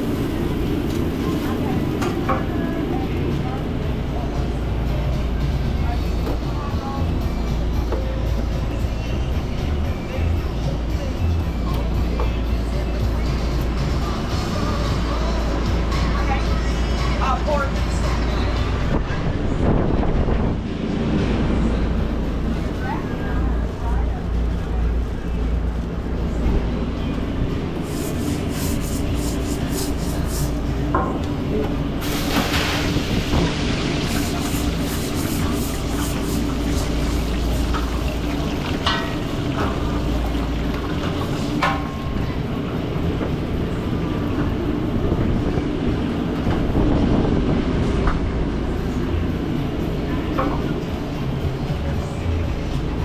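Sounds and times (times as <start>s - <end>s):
kitchen equipment rumble: 20.8s - 53.0s
rhythmic scraping strokes: 27.8s - 33.0s, 33.6s - 41.9s.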